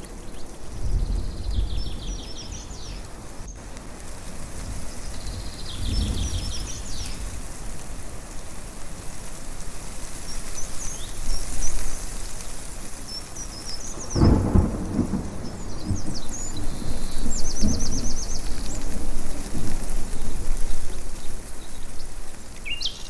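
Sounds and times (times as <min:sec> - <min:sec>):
thunder rumbling: 0:00.0 - 0:09.7, 0:10.4 - 0:22.7
small birds chirping: 0:00.0 - 0:23.0
steady rushing rain: 0:00.0 - 0:23.0.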